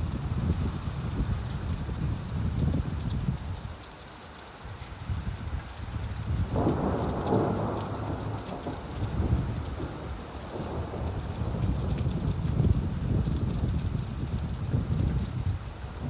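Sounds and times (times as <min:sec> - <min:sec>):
steady rainfall: 0:00.0 - 0:16.0
low rumble of thunder: 0:05.1 - 0:16.0.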